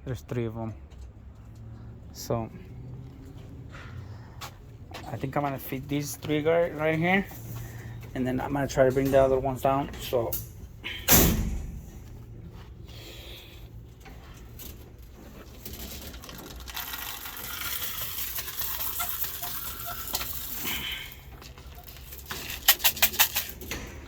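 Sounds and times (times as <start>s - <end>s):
grain pouring patter: 15.6s - 23.1s.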